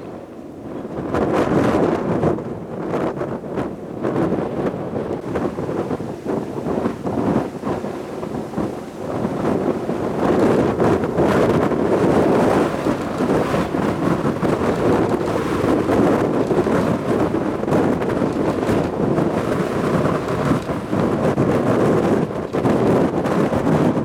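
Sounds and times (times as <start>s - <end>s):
wind buffeting microphone: 0.0s - 24.0s
jet aircraft roar: 5.2s - 21.2s.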